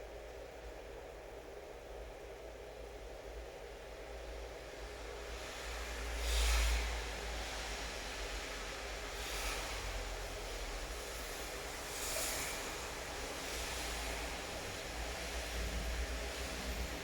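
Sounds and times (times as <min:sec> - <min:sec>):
steady rain hiss: 0:04.6 - 0:17.0.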